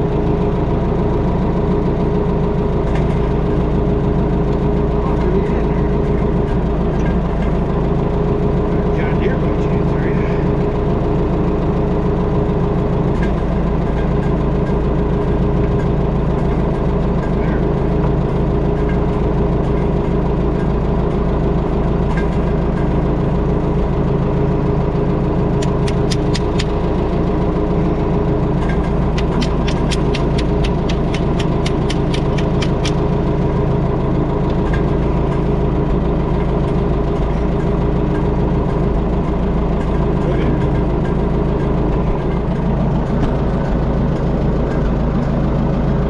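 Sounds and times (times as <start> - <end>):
engine running steadily: 0.0 - 46.0
sharp clicks: 25.6 - 26.8, 29.1 - 33.1.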